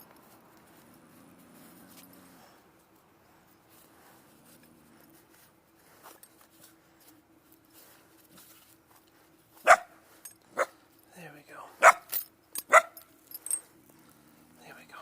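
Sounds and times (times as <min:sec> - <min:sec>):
rustling: 0:00.0 - 0:11.2.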